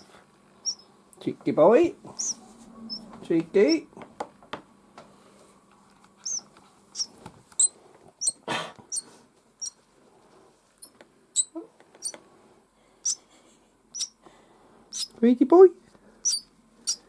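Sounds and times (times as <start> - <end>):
baby bird cheeping: 0.6 - 0.9, 2.2 - 3.9, 6.2 - 9.8, 10.8 - 12.2, 13.0 - 13.2, 13.9 - 14.2, 14.9 - 15.2, 16.2 - 17.0.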